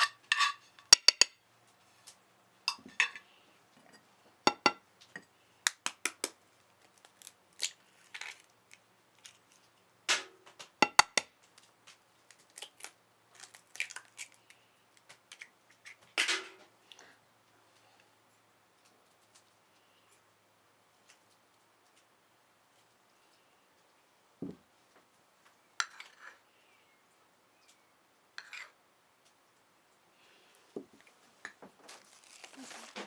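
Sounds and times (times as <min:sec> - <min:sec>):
utensils clinking against a bowl: 0:00.0 - 0:01.4, 0:02.7 - 0:05.3.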